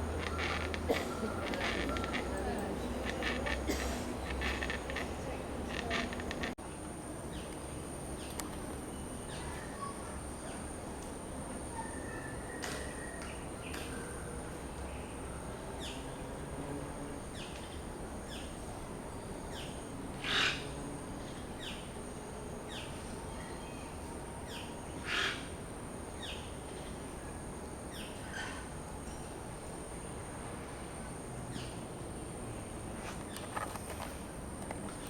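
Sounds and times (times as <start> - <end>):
birds chirping: 0.0 - 6.6.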